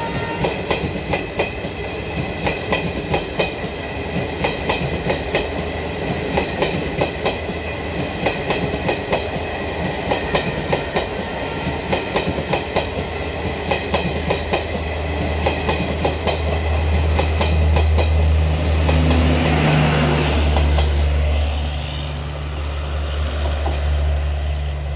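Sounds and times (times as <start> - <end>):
train wheels clicking over rail joints: 0.4 - 19.8.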